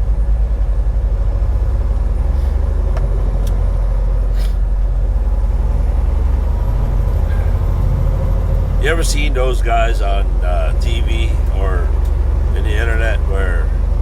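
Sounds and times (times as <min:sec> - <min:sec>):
truck engine and road noise: 0:00.0 - 0:14.0
brief hiss: 0:04.3 - 0:04.6.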